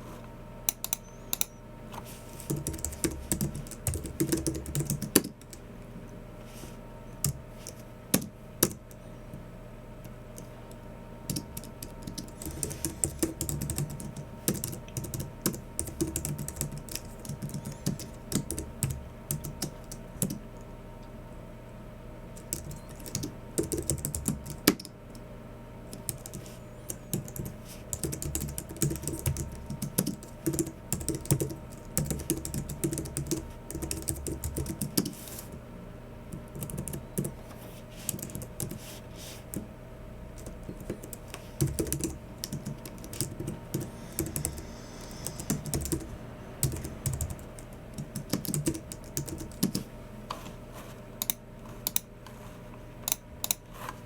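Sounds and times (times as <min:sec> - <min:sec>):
faint steady hum: 0:00.0 - 0:54.0
typing on a keyboard: 0:02.5 - 0:05.6, 0:11.3 - 0:20.4, 0:22.4 - 0:25.0, 0:25.9 - 0:35.1, 0:36.4 - 0:37.3, 0:40.4 - 0:44.6, 0:45.3 - 0:46.0, 0:46.6 - 0:49.8.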